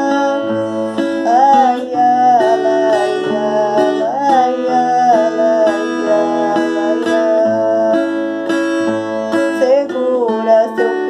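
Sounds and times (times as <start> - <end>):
strummed acoustic guitar: 0.0 - 11.0
woman singing: 0.0 - 11.0.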